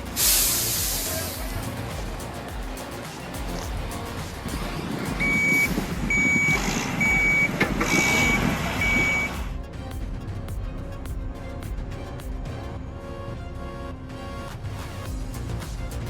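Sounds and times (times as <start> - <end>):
background music: 0.0 - 16.0
backup alarm beeping: 5.2 - 9.4.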